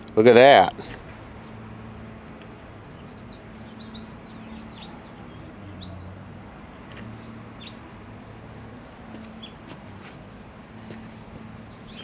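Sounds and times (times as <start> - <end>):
small birds chirping: 0.9 - 1.7, 2.4 - 7.9, 9.0 - 10.2, 10.8 - 12.0.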